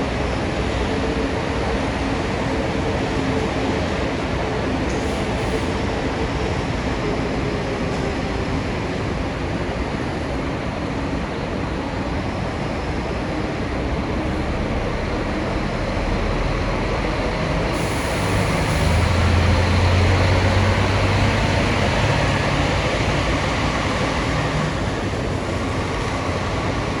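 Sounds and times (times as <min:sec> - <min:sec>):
road and traffic noise: 0:00.0 - 0:27.0
coach diesel engine droning: 0:13.8 - 0:27.0.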